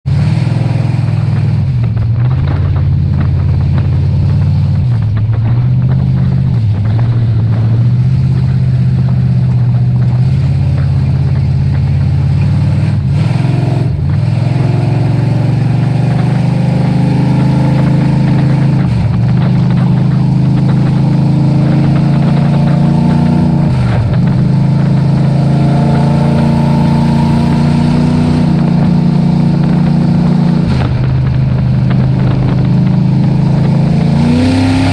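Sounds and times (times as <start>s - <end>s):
race truck engine at high revs: 0.0s - 34.9s.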